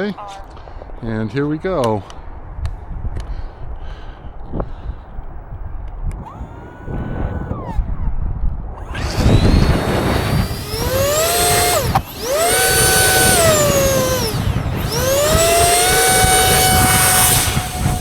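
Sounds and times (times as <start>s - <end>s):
electric ducted fan whine: 8.8s - 18.0s
wind buffeting microphone: 8.8s - 18.0s.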